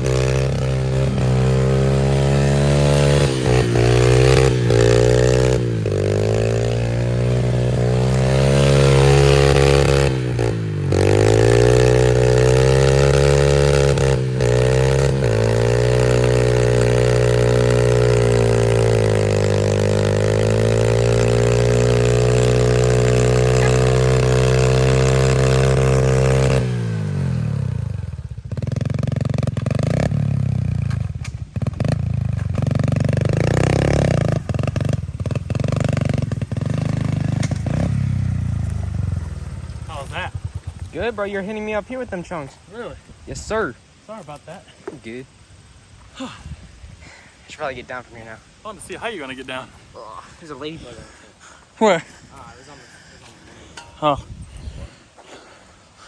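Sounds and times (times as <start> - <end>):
small motorbike engine revving: 0.0 - 42.4.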